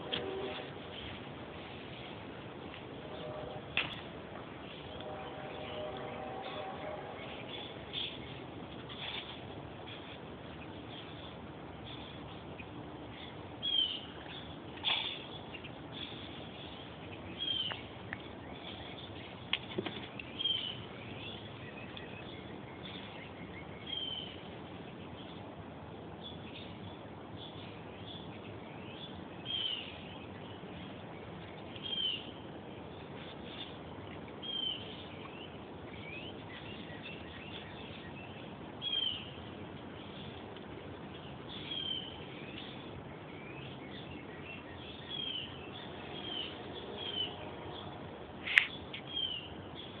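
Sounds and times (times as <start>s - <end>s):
birds chirping: 0.0s - 50.0s
low background noise: 0.0s - 50.0s.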